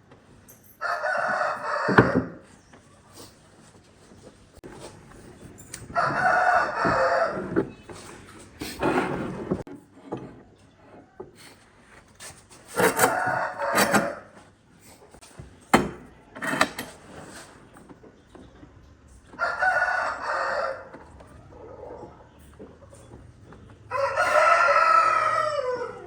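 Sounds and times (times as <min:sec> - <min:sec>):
rooster crowing: 0:00.8 - 0:02.4, 0:05.9 - 0:07.6, 0:12.8 - 0:14.3, 0:19.4 - 0:22.0, 0:23.9 - 0:26.0.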